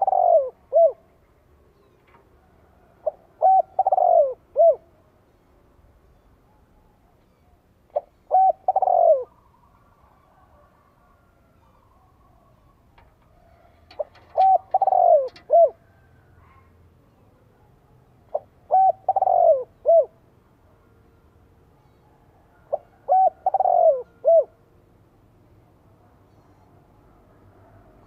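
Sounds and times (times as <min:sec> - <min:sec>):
dove cooing: 0:00.0 - 0:01.1, 0:02.5 - 0:05.0, 0:07.9 - 0:16.7, 0:18.3 - 0:20.3, 0:22.6 - 0:24.6.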